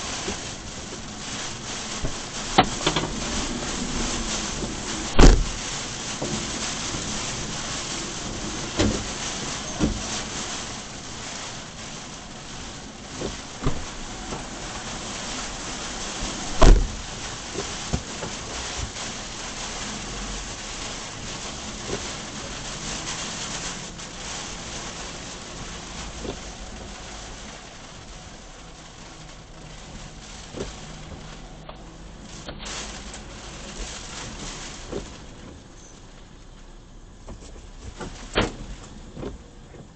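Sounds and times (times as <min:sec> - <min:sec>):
heavy rain pouring: 0:00.0 - 0:39.9
loud thump: 0:05.1 - 0:05.6, 0:13.2 - 0:13.9, 0:16.6 - 0:17.0.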